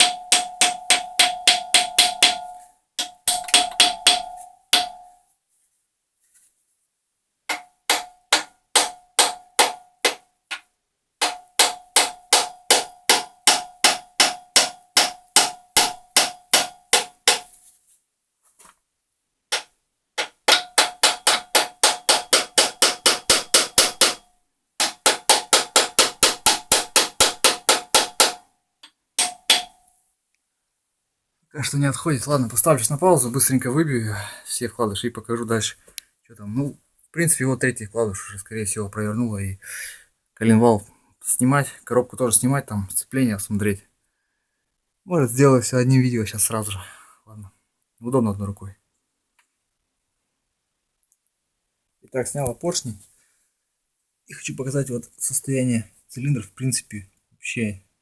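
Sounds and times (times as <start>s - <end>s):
hammer tapping on metal: 0.0s - 5.2s, 7.5s - 17.5s, 19.5s - 24.2s, 24.8s - 29.8s.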